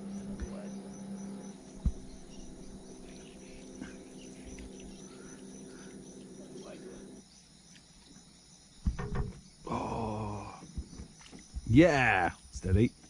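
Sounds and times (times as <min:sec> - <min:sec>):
low steady hum: 0:00.0 - 0:12.2
insects chirping: 0:00.0 - 0:13.0
sharp thump: 0:01.8 - 0:02.2, 0:08.8 - 0:09.5.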